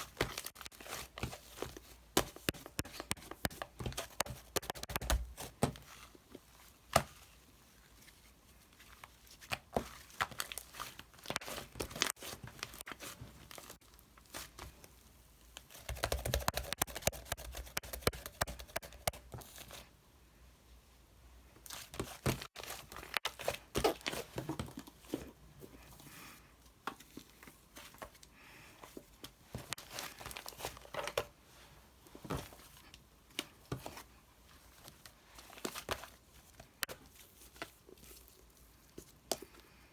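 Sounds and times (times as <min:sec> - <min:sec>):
sharp clicks and taps: 0:02.2 - 0:05.2, 0:15.9 - 0:19.2.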